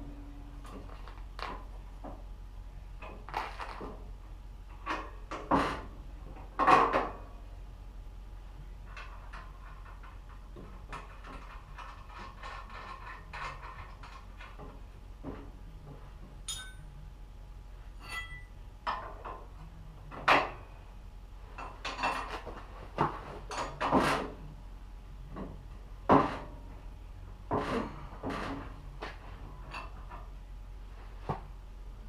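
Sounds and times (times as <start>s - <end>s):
metal tools clinking and clanking: 16.5s - 16.9s, 18.0s - 18.5s
ringing metallic tings: 16.5s - 16.9s, 18.0s - 18.5s.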